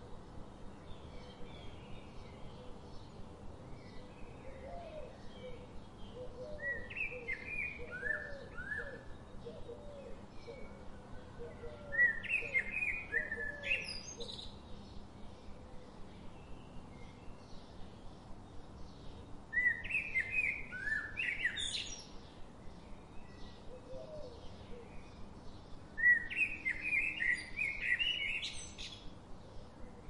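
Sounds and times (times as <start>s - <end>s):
birds chirping and singing: 11.5s - 29.7s.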